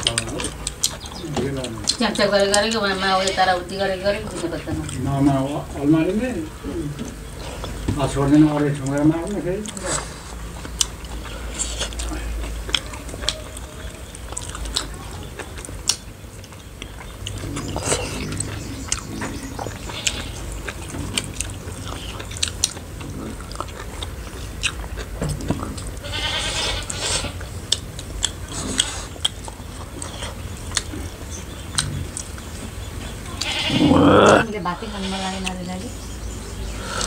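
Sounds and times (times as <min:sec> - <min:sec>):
people chewing and lip smacking: 0:00.0 - 0:37.0
animal calling: 0:09.6 - 0:37.0.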